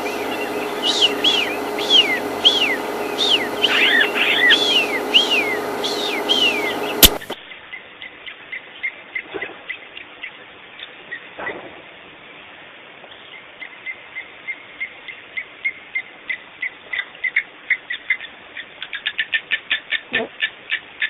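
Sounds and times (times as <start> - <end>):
birds whistling: 0.0 - 7.4
short bird chirps: 0.0 - 7.4
sharp click: 7.0 - 7.4.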